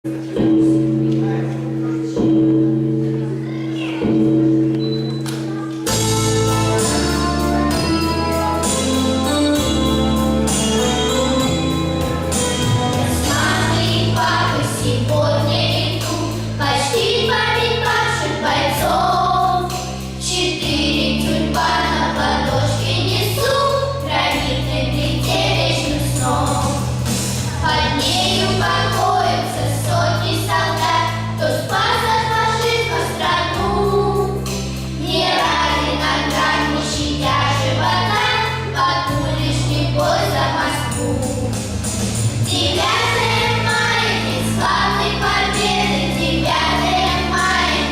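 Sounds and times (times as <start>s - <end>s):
instrumental accompaniment: 0.1s - 47.9s
held bass notes: 5.9s - 47.9s
vocal ensemble singing: 11.7s - 47.9s.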